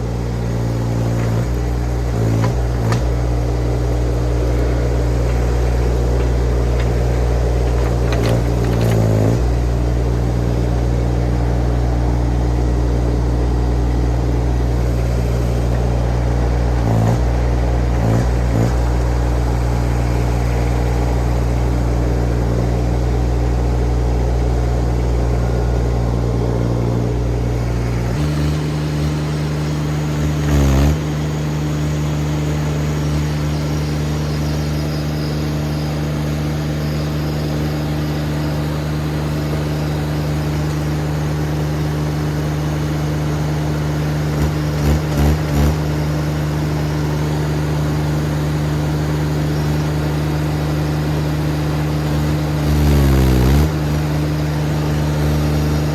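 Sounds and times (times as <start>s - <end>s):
machine engine running: 0.0s - 55.9s
loud mechanical clunk: 0.3s - 11.6s.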